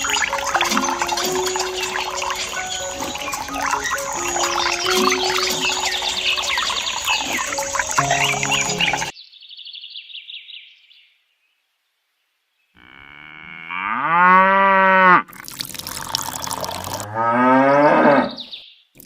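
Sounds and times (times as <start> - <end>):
running water: 0.0 - 9.1, 15.3 - 17.3
high chirping: 0.0 - 9.2
cow mooing: 12.8 - 15.2, 16.7 - 18.4.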